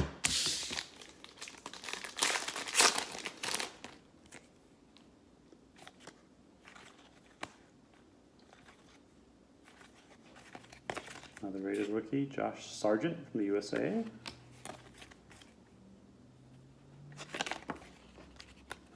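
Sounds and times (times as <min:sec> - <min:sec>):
card pack wrapper crinkling: 0:00.2 - 0:04.5
card handling: 0:00.2 - 0:12.0, 0:13.6 - 0:15.7, 0:17.0 - 0:18.9.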